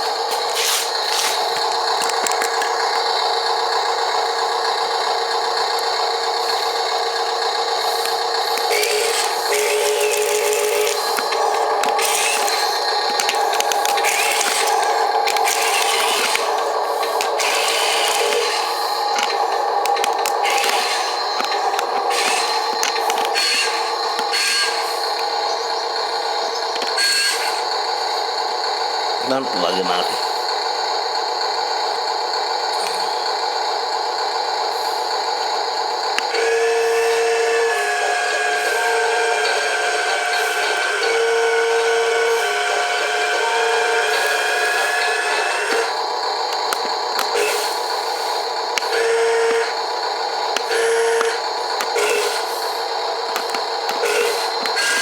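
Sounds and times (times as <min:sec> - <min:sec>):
toy truck electric motor whining: 0:00.0 - 0:55.0
clicks: 0:08.0 - 0:25.6, 0:53.3 - 0:54.9.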